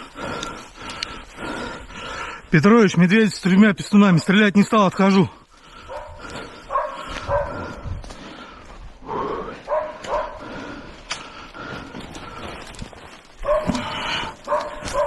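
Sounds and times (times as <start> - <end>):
dog barking and yelping: 5.9 - 7.7, 9.7 - 10.4, 13.4 - 13.9, 14.5 - 15.0.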